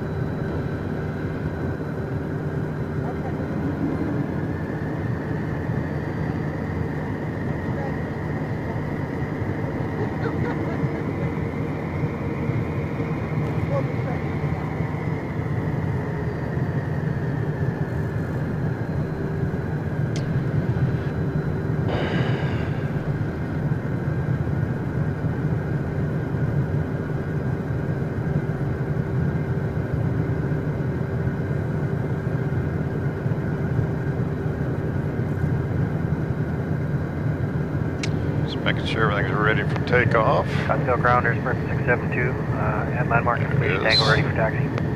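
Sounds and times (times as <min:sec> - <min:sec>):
jet engines idling with whine: 0:00.0 - 0:44.9
rush of noise: 0:02.4 - 0:07.6, 0:20.2 - 0:24.3.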